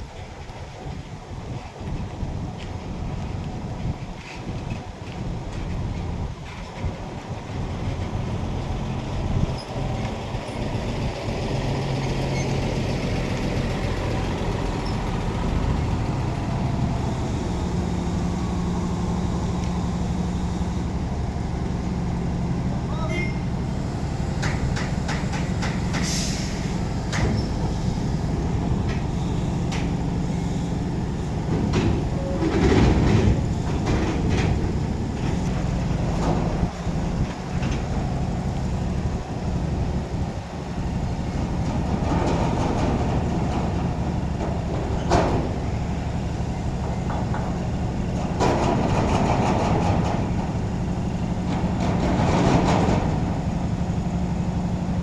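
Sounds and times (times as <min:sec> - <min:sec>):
heavy diesel engine running: 0:00.0 - 0:55.0
metallic clanks and knocks: 0:24.4 - 0:27.8, 0:46.8 - 0:50.6.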